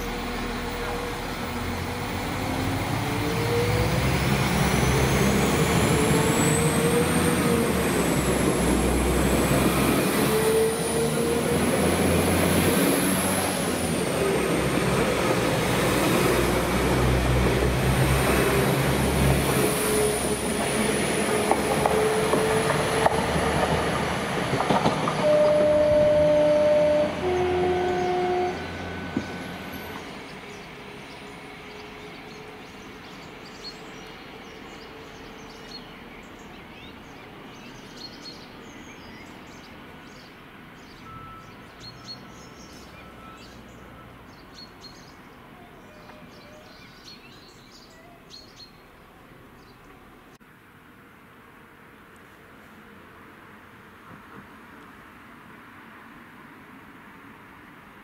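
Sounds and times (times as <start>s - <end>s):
diesel train engines pulling away: 0.0s - 47.2s
two-note train horn: 25.2s - 30.0s.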